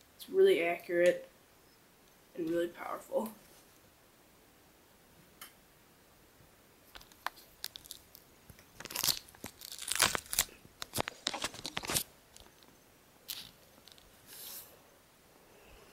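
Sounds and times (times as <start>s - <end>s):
dense rustling and crackling: 7.0s - 12.7s.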